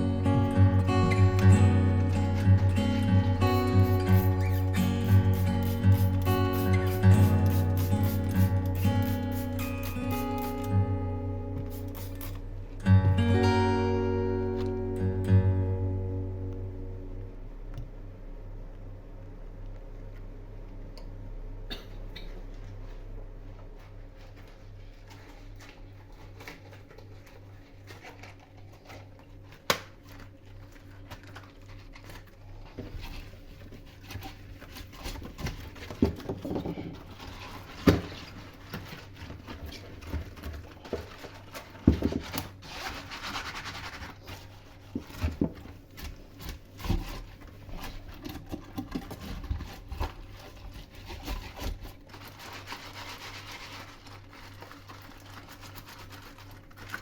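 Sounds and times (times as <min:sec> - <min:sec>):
steady low hum: 0:00.0 - 0:29.4
rubbing and scraping: 0:31.3 - 0:57.0.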